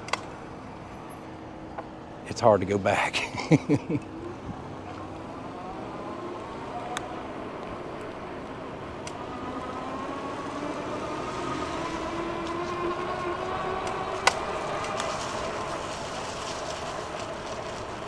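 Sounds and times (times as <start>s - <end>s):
electric motor whining: 5.1s - 18.0s
tyre and wind noise: 5.6s - 18.0s.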